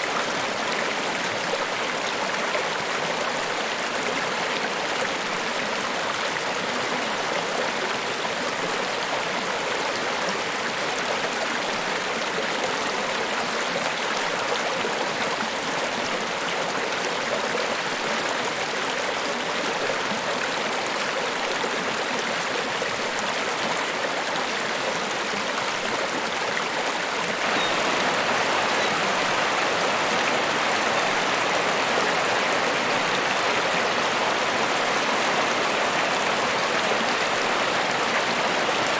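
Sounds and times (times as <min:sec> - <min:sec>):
waterfall rushing: 0:27.4 - 0:38.9.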